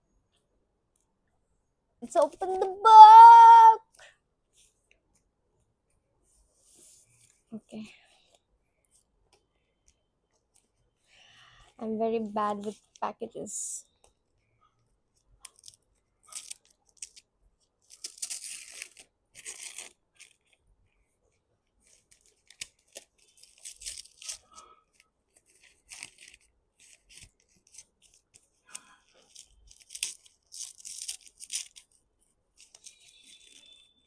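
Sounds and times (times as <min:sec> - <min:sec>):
paper wrapping tearing: 0:15.5 - 0:17.2, 0:17.8 - 0:20.6, 0:21.8 - 0:24.6, 0:25.3 - 0:28.5, 0:29.1 - 0:32.0.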